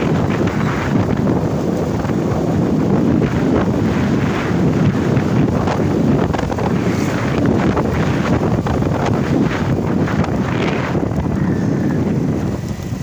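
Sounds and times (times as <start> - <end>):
motorcycle running: 0.0 - 13.0
wind buffeting microphone: 0.0 - 13.0.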